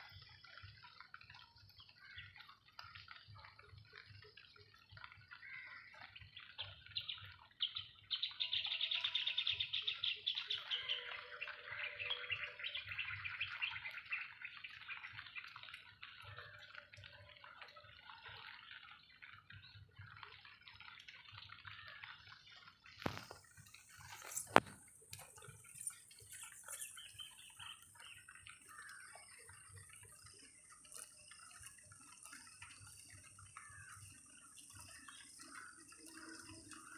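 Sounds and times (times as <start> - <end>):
birds chirping and singing: 5.5 - 15.7, 23.1 - 31.6, 32.2 - 36.9
high bird chirps: 23.1 - 31.5.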